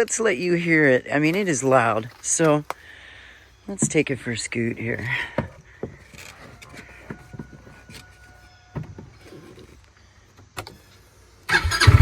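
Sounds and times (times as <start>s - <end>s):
knocks and clicks of handling: 3.7s - 10.8s.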